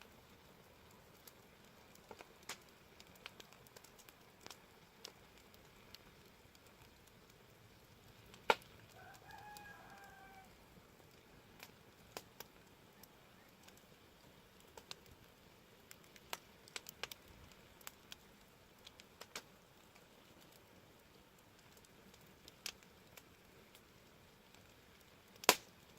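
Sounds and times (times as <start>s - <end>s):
wood fire crackling and popping: 0.0s - 25.9s
distant rooster crowing: 8.9s - 10.6s.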